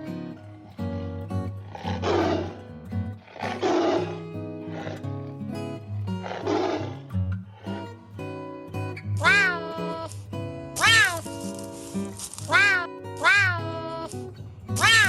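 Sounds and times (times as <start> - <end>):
background music: 0.0 - 15.0
big cat roaring: 0.7 - 5.2, 6.1 - 8.0.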